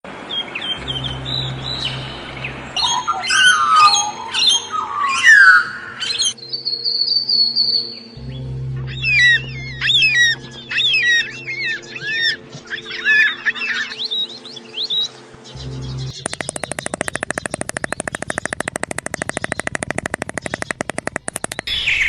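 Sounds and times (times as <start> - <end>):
steady low hum: 0.1 - 3.2, 8.0 - 13.6
small birds chirping: 0.3 - 22.0
fast run of repeated notes: 16.1 - 21.7.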